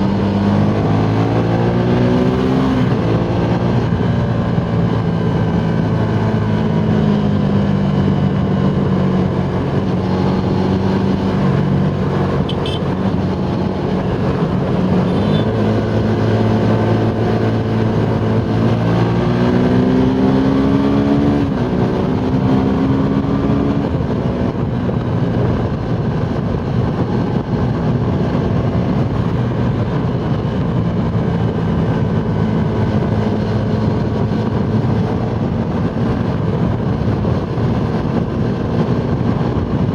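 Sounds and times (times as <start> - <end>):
motorcycle engine running hard: 0.0 - 39.9
wind rush: 0.0 - 39.9.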